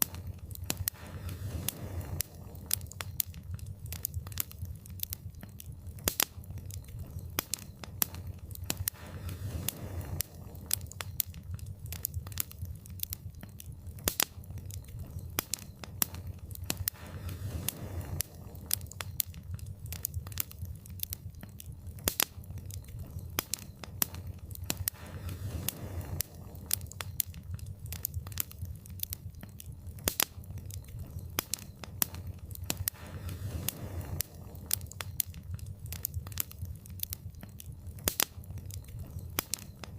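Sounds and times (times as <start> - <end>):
fire crackling and popping: 0.0 - 39.9
low rumble of flames: 0.0 - 39.9
soft whooshing of fire: 0.0 - 39.9.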